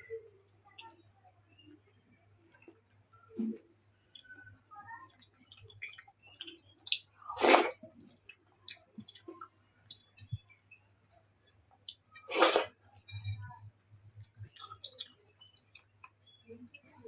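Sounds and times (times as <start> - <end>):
chewing food: 5.0 - 10.4, 11.8 - 13.5, 14.1 - 17.0
wet mouth clicks: 5.5 - 7.8, 11.9 - 12.7.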